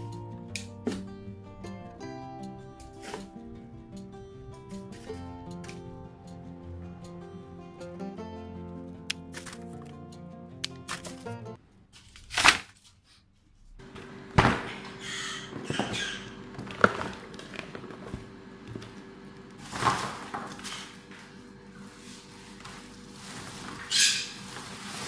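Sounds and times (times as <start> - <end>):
low steady hum: 0.0 - 10.6, 13.4 - 23.9
music: 0.0 - 11.6
rustling: 16.4 - 25.0.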